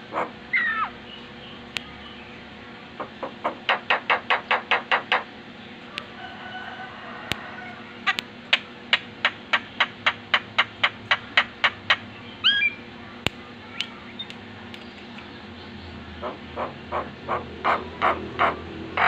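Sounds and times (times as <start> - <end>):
bird whistling: 0.5 - 1.3, 12.4 - 12.9
harsh clipped bird notes: 7.8 - 18.6.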